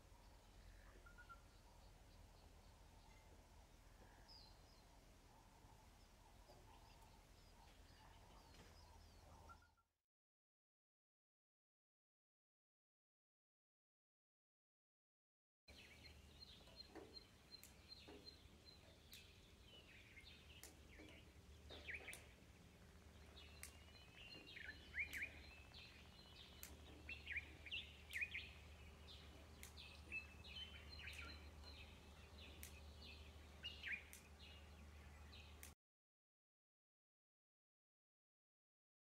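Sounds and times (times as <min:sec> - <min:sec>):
low steady hum: 0:00.0 - 0:09.6, 0:15.7 - 0:35.7
wild birds chirping: 0:00.0 - 0:09.8, 0:15.7 - 0:35.7.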